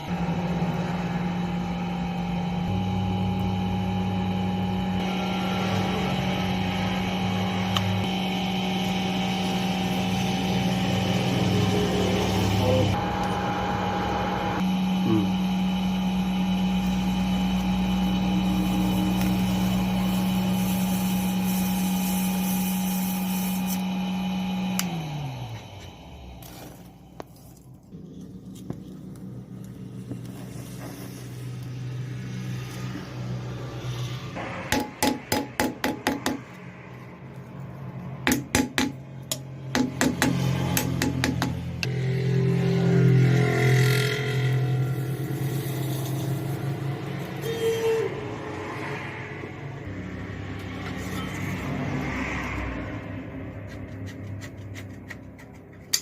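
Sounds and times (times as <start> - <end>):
machine motor humming: 0.0 - 27.2.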